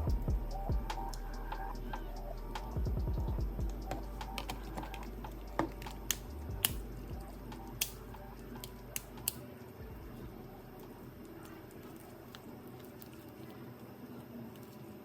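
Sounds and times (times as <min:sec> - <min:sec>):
smartphone parts clicking: 0:03.9 - 0:09.5.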